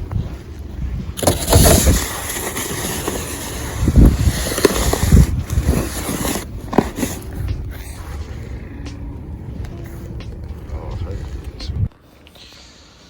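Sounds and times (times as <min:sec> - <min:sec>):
wind rushing across microphone: 0:00.0 - 0:08.7.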